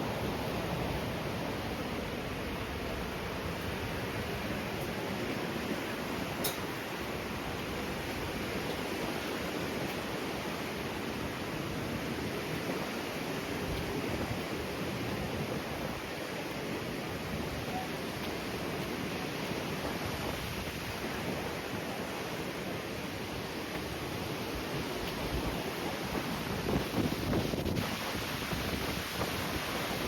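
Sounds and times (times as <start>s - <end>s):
strong wind blowing: 23.1s - 30.0s.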